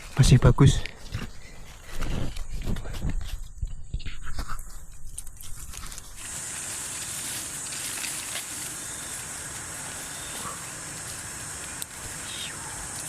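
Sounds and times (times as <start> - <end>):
rustling in undergrowth: 0.0 - 13.0
high-pitched forest hiss: 6.0 - 13.0.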